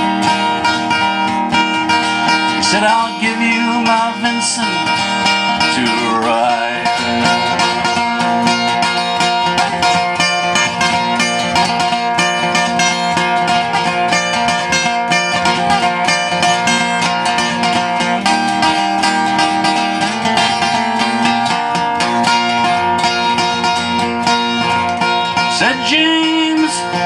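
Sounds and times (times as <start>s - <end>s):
acoustic guitar fast picking: 0.0s - 27.0s.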